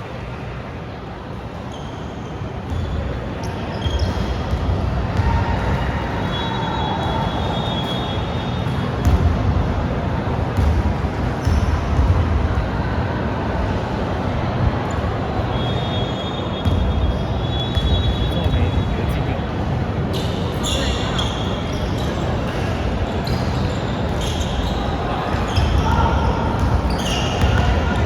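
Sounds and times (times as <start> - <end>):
sneaker squeaks on floor: 1.6 - 9.2, 11.3 - 12.2, 14.9 - 19.3, 20.0 - 28.0
basketball bouncing: 9.0 - 9.4, 10.6 - 12.4, 16.6 - 18.8, 25.5 - 28.0.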